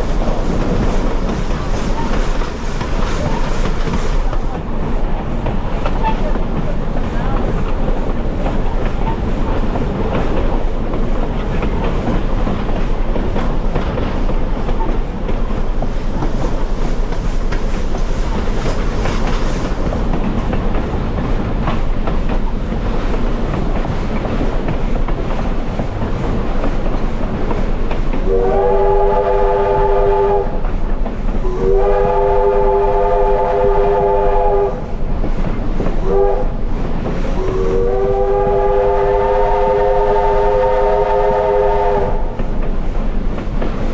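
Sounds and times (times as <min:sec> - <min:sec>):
train rolling along rails: 0:00.0 - 0:43.9
steam locomotive chime whistle: 0:28.3 - 0:30.6, 0:31.4 - 0:34.8, 0:36.0 - 0:36.5, 0:37.4 - 0:42.3.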